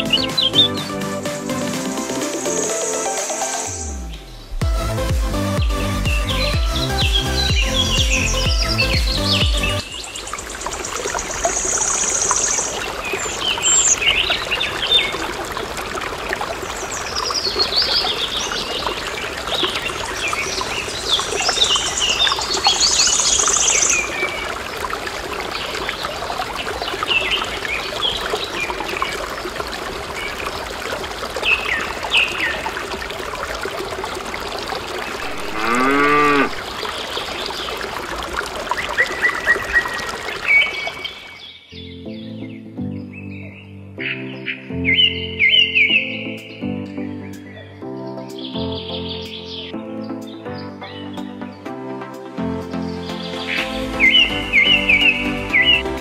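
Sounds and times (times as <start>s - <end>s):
birds chirping: 0.0s - 1.1s, 5.4s - 33.1s, 33.8s - 37.9s, 38.7s - 51.8s, 52.6s - 56.0s
water trickling: 7.0s - 41.6s
cow mooing: 35.2s - 36.6s.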